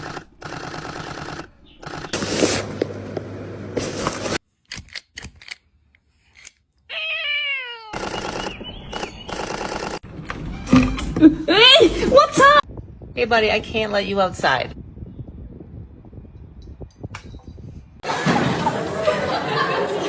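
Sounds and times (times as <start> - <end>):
cat meowing: 6.9 - 8.0.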